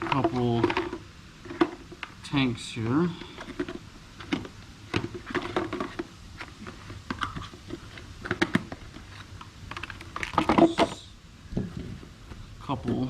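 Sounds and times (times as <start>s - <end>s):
plastic parts clicking and knocking: 0.0s - 2.1s, 3.2s - 11.0s.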